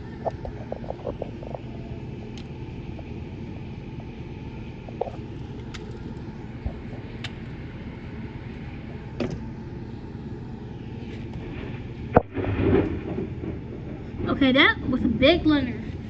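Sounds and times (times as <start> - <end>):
storm wind: 0.0 - 16.0
rain: 11.3 - 16.0.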